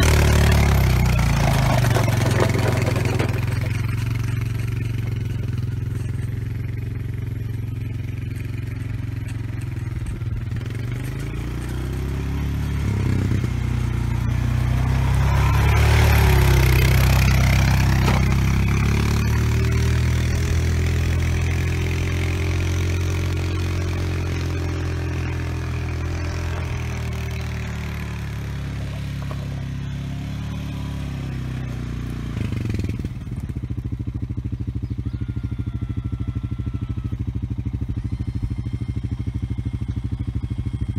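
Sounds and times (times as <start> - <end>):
scraping rattling noise: 0.0 - 6.2
atv engine under load: 0.0 - 40.9.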